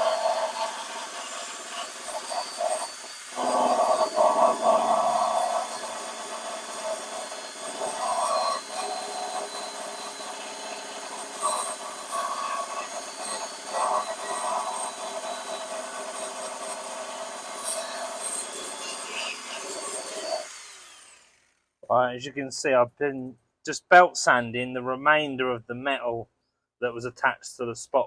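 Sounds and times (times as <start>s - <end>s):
belt sander grinding steel: 0.0s - 21.6s.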